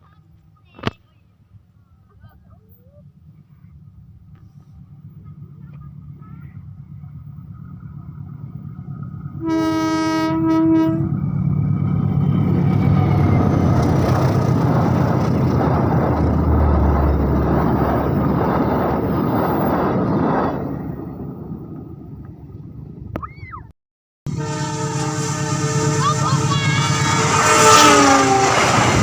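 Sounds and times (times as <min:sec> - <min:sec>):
locomotive engine rumble: 0:00.0 - 0:23.6, 0:24.3 - 0:29.0
train wheels rushing on rails: 0:01.4 - 0:23.0, 0:24.3 - 0:29.0
train horn blast: 0:09.4 - 0:11.2, 0:24.3 - 0:29.0.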